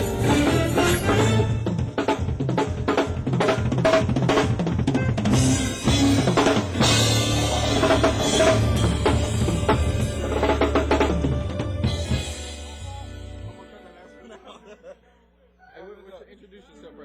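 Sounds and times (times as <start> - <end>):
sustained keyboard chords: 0.0 - 2.0, 4.8 - 14.8
drum kit groove: 0.0 - 13.9
live band playing: 0.0 - 14.3.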